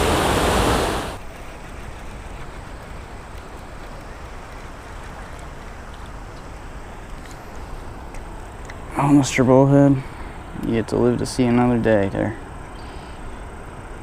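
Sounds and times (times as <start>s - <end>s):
waterfall rushing: 0.0s - 1.2s
low water rumble: 0.0s - 11.4s.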